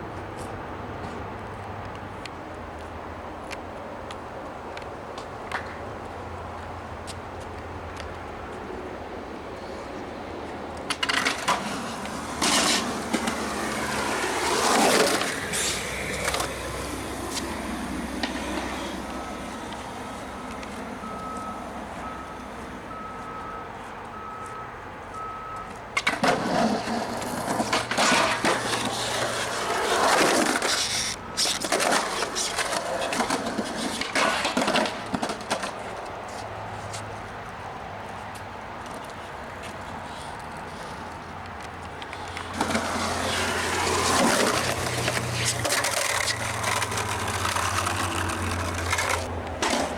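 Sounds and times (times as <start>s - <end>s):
skateboard wheels rolling: 0.0s - 23.5s, 26.0s - 49.9s
skateboard hitting ground: 10.9s - 22.8s, 26.0s - 35.9s, 42.5s - 49.9s
faint repeating beep: 21.0s - 25.7s.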